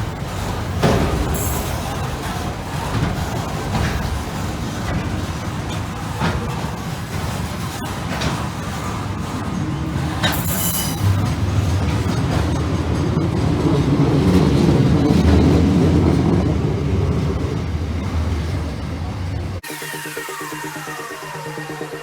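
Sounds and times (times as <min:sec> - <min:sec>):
freight train rumbling past: 0:00.0 - 0:22.0
train wheel screech: 0:00.0 - 0:22.0.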